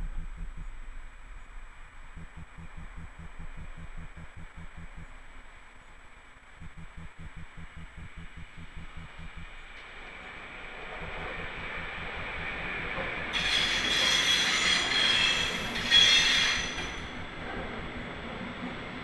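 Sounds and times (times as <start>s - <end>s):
train wheels rumbling on track: 6.6s - 19.0s
train wheels squealing: 13.3s - 17.3s.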